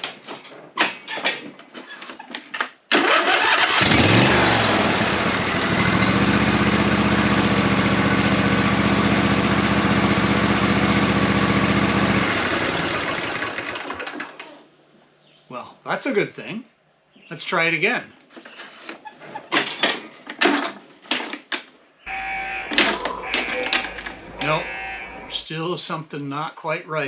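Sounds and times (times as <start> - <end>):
lawn tractor engine starting: 2.9 - 14.6, 22.1 - 25.4.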